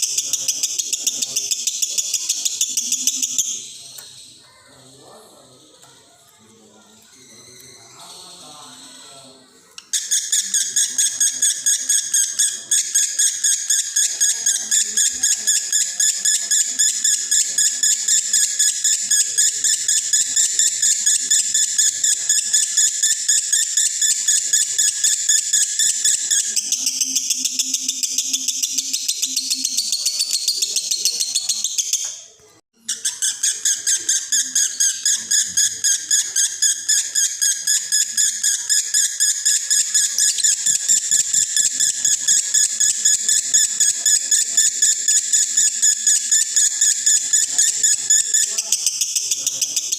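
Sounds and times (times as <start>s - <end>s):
lovebird chattering: 0.0s - 5.4s, 9.8s - 49.9s.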